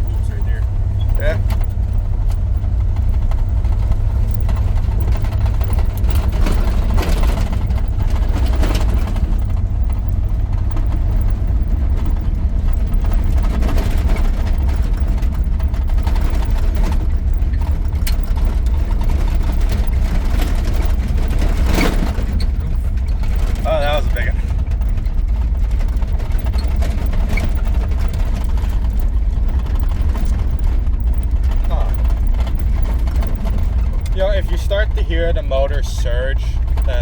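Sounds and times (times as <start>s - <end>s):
engine and road rumble: 0.0s - 37.0s
knocks and rattles over bumps: 0.0s - 37.0s.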